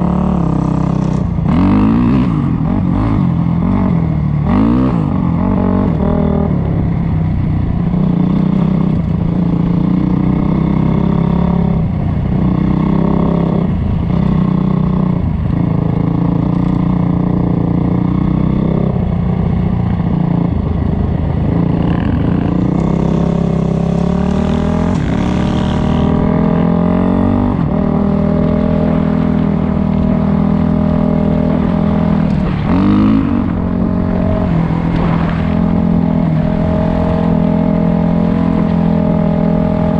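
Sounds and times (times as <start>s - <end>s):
dirt bike engine revving: 0.0s - 6.7s, 21.3s - 39.9s.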